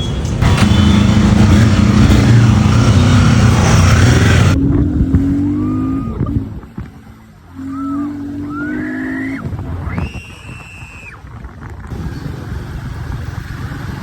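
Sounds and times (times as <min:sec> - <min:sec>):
broad rushing noise: 0:00.0 - 0:14.0
motorcycle engine running: 0:00.1 - 0:09.8.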